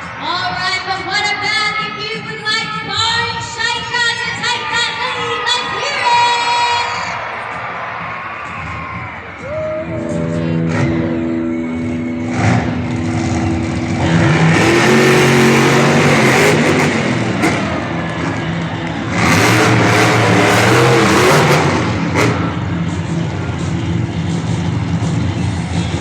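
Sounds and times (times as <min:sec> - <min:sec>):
monster truck engines revving: 0:10.0 - 0:26.0.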